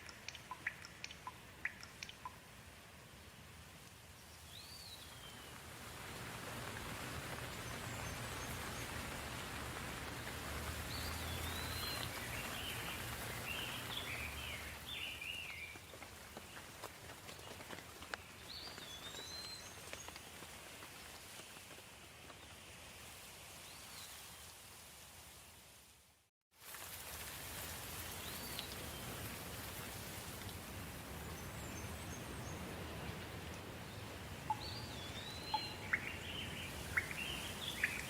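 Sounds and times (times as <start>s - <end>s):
drips ticking: 0.0s - 2.5s, 34.4s - 36.2s
rain hissing: 0.0s - 26.0s, 26.6s - 38.0s.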